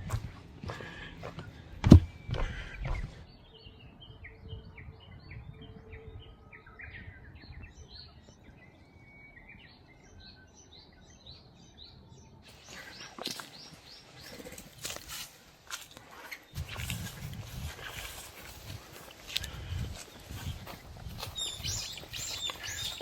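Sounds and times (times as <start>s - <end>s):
rustling and scuffing: 0.0s - 3.2s, 12.5s - 23.0s
small birds chirping: 0.0s - 23.0s.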